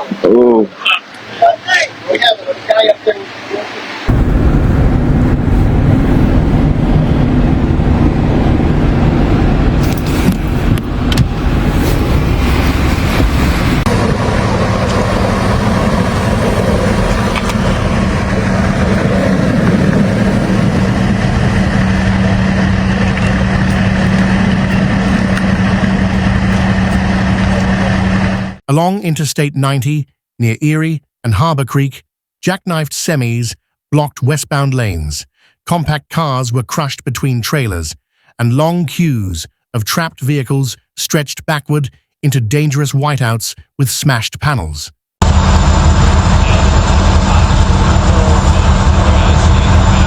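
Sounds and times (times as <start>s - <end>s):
moving vehicle rumble: 2.0s - 28.6s, 45.2s - 50.0s
loud even rushing noise: 3.2s - 28.6s.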